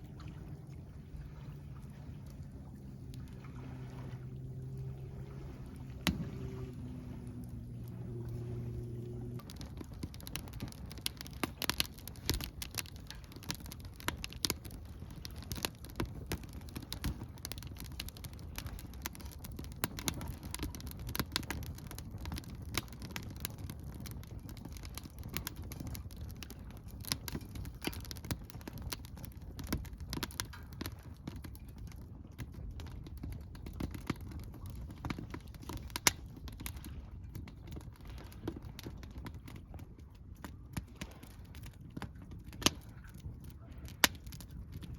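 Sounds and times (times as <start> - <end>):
low fire rumble: 0.0 - 44.9
wood fire crackling and popping: 1.3 - 44.9.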